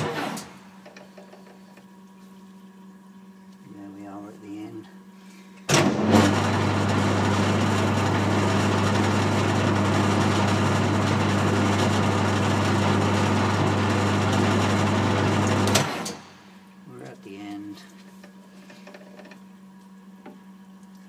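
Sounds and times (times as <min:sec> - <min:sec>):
lathe motor hum: 0:06.0 - 0:16.4.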